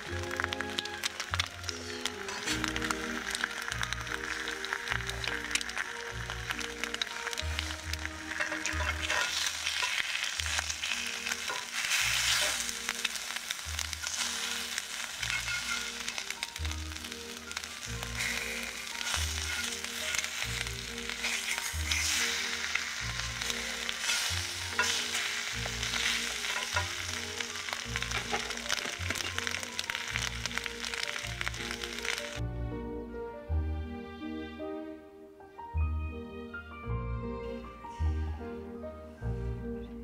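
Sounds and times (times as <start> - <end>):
eggs and ham sizzling in skillet: 0.0 - 32.4
metal turner scraping pan: 1.8 - 3.6, 6.9 - 13.2, 14.0 - 16.3, 18.2 - 29.9.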